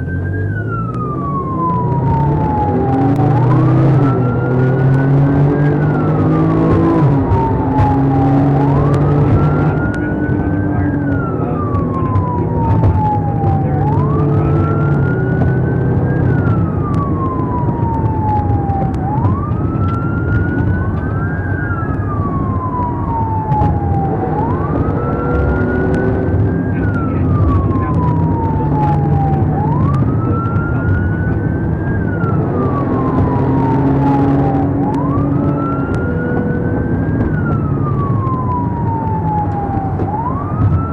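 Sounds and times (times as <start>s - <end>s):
police siren wailing: 0.0s - 40.9s
vehicle driving rumble: 0.0s - 40.9s.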